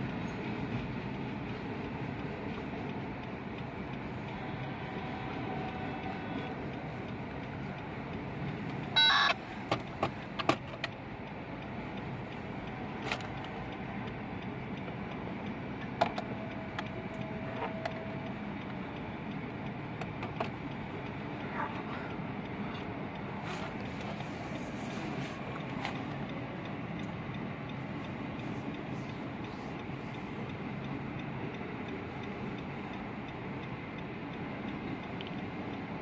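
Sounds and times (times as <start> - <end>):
freight train rumbling past: 0.0 - 9.6.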